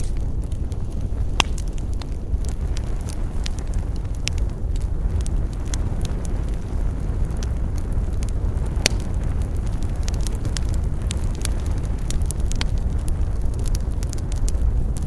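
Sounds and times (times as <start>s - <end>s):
campfire flames rushing: 0.0s - 15.0s
fire crackles and pops: 0.0s - 15.0s.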